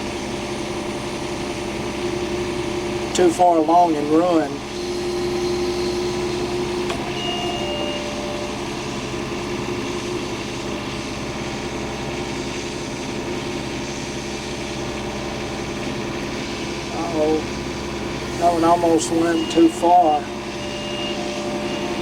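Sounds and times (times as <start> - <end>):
engine running: 0.0 - 22.0
short whining tones: 4.6 - 10.5, 17.4 - 22.0.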